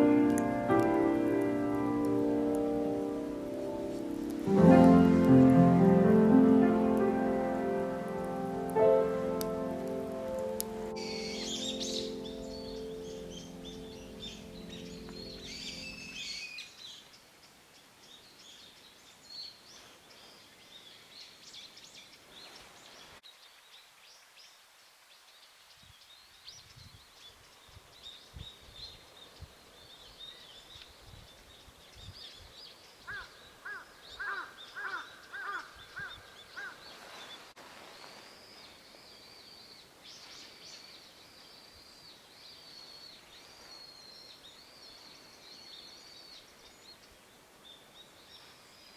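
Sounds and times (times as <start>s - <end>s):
birds chirping and calling: 10.9s - 16.2s
loud bird calls: 33.1s - 37.0s.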